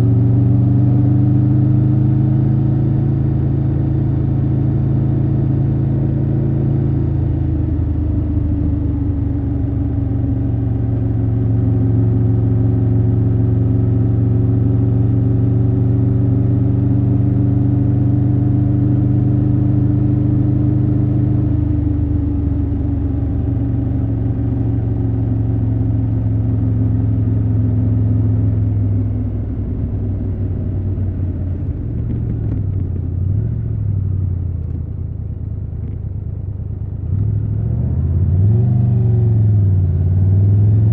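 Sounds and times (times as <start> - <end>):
motorcycle engine running: 0.0 - 38.3.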